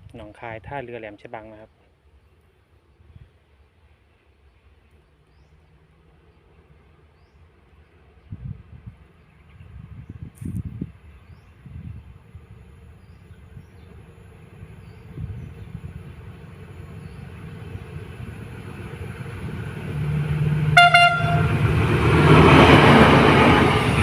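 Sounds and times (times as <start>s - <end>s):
train approaching: 10.9s - 24.0s
train horn toot: 20.7s - 21.6s.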